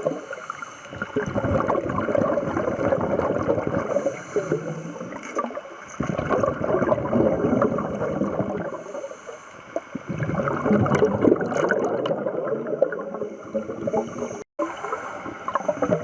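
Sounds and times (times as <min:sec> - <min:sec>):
bubbly gurgling of exhaled air: 0:00.0 - 0:09.1, 0:09.7 - 0:16.0.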